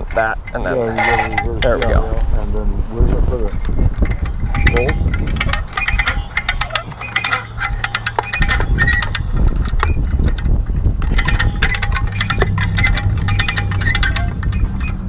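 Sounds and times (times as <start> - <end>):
steady low hum: 0.0 - 15.0
metallic tool clicks and clinks: 4.0 - 15.0.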